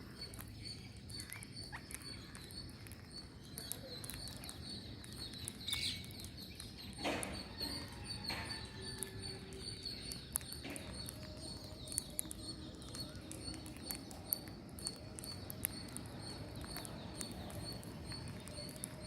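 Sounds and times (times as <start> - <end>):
low background noise: 0.0 - 19.0
sharp clicks: 1.1 - 19.0.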